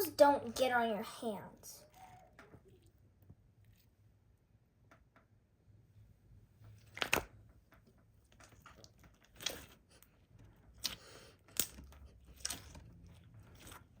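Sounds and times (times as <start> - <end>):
slime being squished: 8.4 - 14.0.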